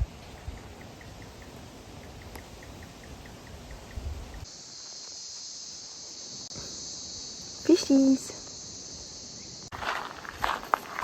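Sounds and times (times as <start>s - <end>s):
wind rumble on microphone: 0.0s - 4.5s
high-pitched insect drone: 0.6s - 10.3s.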